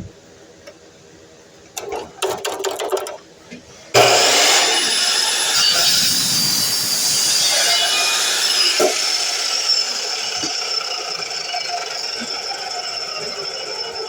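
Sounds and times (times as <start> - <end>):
miter saw cutting: 4.0 - 14.0.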